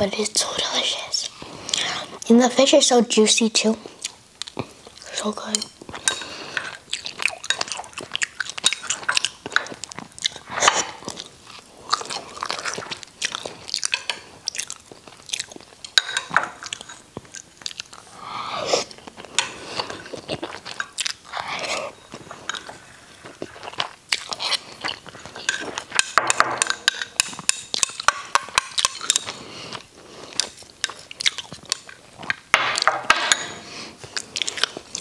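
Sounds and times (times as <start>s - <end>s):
person chewing food: 1.2s - 2.3s, 3.8s - 35.0s
sharp mouth clicks and smacks: 30.3s - 32.9s.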